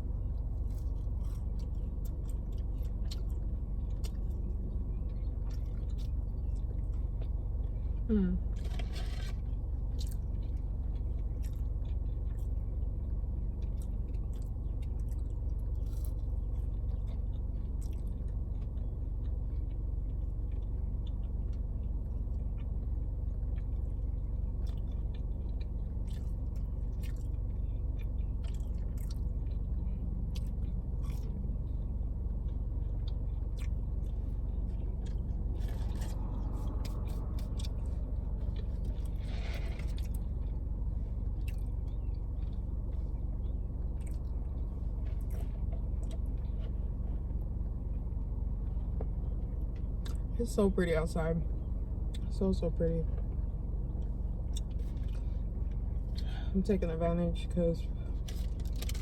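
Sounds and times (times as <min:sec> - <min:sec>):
steady low rumble: 0:00.0 - 0:59.0
person chewing with mouth clicks: 0:13.6 - 0:31.4, 0:32.3 - 0:40.6.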